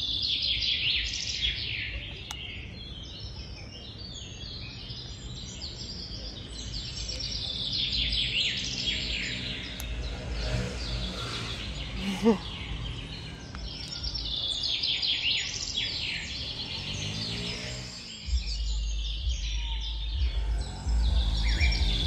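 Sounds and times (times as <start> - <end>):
small birds twittering: 0.0 - 22.0
low background rumble: 18.2 - 22.0.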